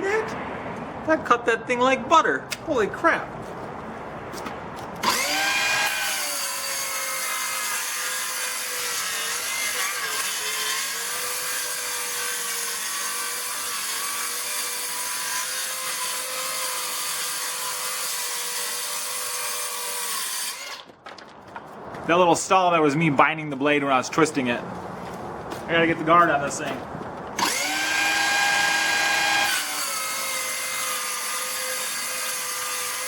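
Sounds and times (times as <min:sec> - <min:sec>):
circular saw cutting board: 0:05.0 - 0:20.9, 0:27.4 - 0:33.0.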